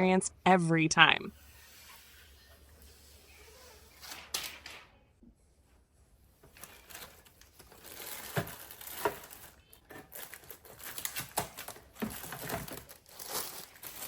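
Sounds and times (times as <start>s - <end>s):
plastic packaging crinkling: 6.5s - 14.0s.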